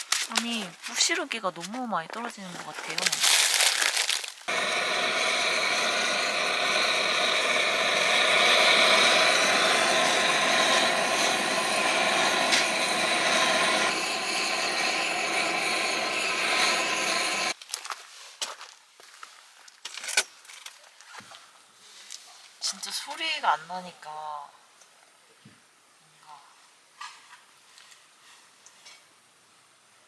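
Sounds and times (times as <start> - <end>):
gas torch flame hissing roar: 4.5 - 17.6.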